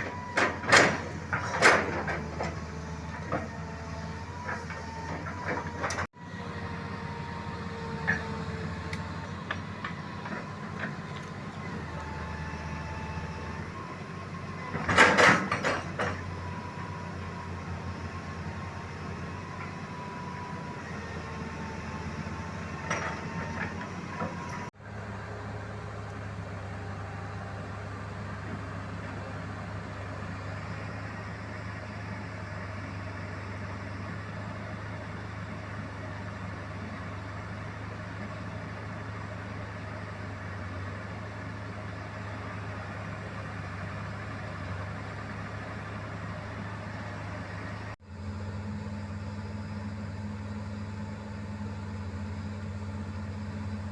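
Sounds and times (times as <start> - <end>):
heavy machine engine running: 0.0 - 53.9.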